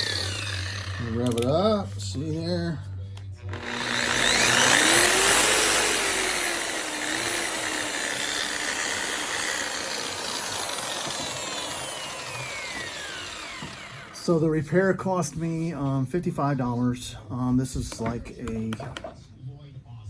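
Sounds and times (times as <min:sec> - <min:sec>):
polisher motor whining: 0:00.0 - 0:02.7, 0:03.4 - 0:14.3.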